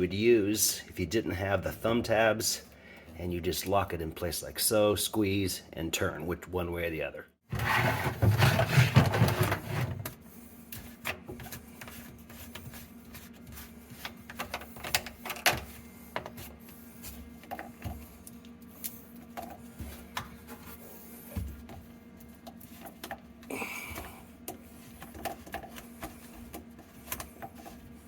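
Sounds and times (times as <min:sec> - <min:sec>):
faint steady hum: 0:07.9 - 0:28.0.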